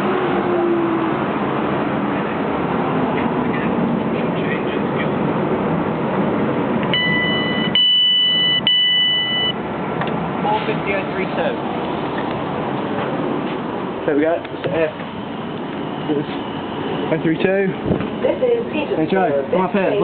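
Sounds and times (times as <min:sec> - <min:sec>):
train arriving: 0:00.0 - 0:20.0
high-pitched electronic warning tone: 0:06.9 - 0:09.6, 0:15.2 - 0:17.2.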